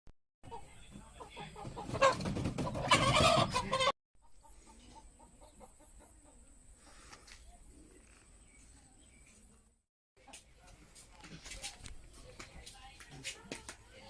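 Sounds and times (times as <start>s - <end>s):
chickens clucking: 0.5s - 6.7s
chickens squawking loudly: 1.4s - 5.7s.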